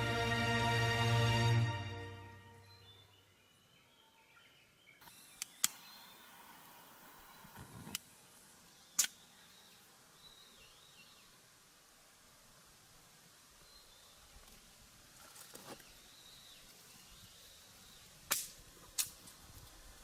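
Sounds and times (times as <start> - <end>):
faint bird chirps: 2.6 - 7.6
sharp clicks: 5.0 - 5.9, 9.0 - 9.2.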